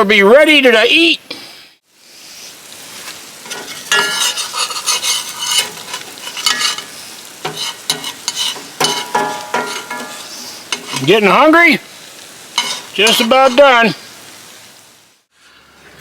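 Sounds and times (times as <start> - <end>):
eggs sizzling in a pan: 1.9 - 15.4
utensil scraping and tapping pan: 3.4 - 11.2, 12.6 - 13.8.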